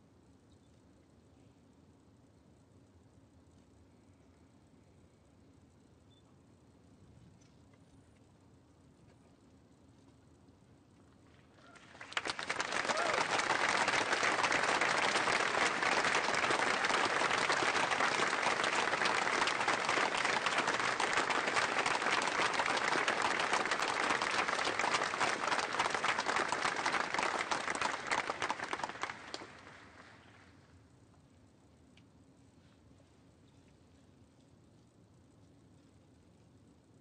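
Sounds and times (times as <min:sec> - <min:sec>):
audience applauding: 0:11.7 - 0:30.2.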